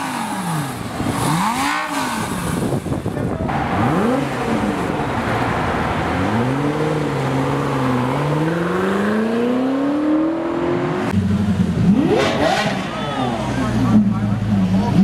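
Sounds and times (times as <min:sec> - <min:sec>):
car engine accelerating: 0:00.0 - 0:15.0
engine revving sharply: 0:07.9 - 0:14.1.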